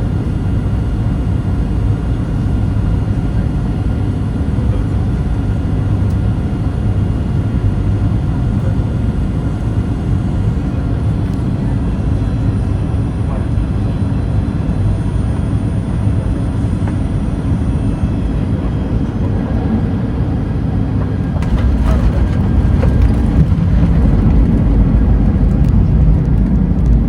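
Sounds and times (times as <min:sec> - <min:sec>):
airplane cabin engine rumble: 0:00.0 - 0:27.0.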